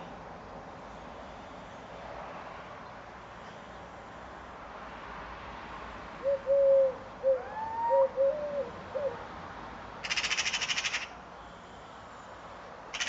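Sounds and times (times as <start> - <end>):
fast rattling bird call: 10.0 - 11.2.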